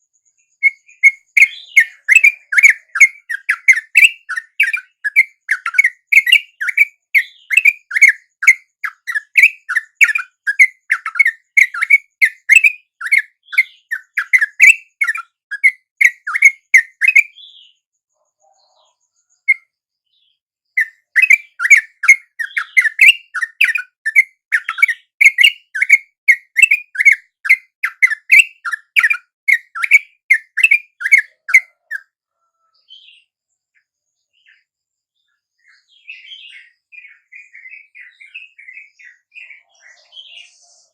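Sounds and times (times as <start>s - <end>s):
bird chattering chirps: 0.6s - 17.7s, 20.7s - 32.2s.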